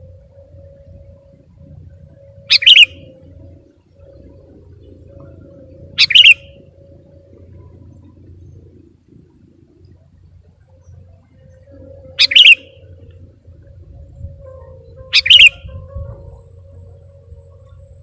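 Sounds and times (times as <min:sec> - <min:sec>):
faint steady hum: 0:00.0 - 0:18.0
bulbul calling: 0:02.1 - 0:08.3, 0:11.6 - 0:18.0.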